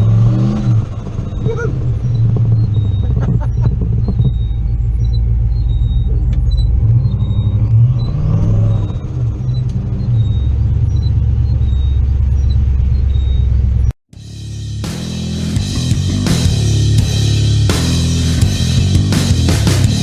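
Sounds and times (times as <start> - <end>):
music: 14.2 - 20.0.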